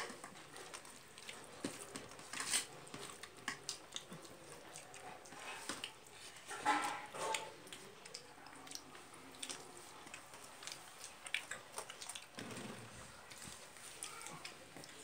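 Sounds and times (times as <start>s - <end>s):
chewing: 0.0s - 15.0s.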